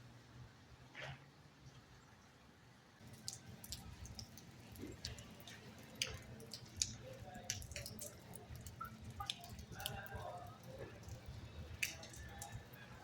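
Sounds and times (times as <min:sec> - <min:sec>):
soft clicks and ticks: 0:03.0 - 0:12.8.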